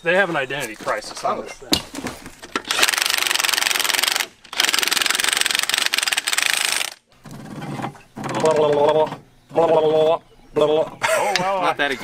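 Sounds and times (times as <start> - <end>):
impact wrench rattling: 1.9 - 7.0.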